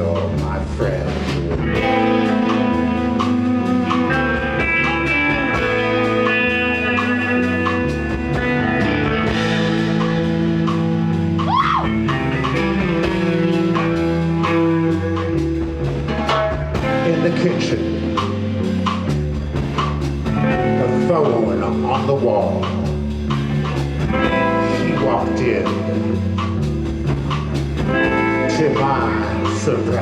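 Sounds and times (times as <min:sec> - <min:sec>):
rock band playing: 0:00.0 - 0:30.0
bending guitar note: 0:27.9 - 0:30.0.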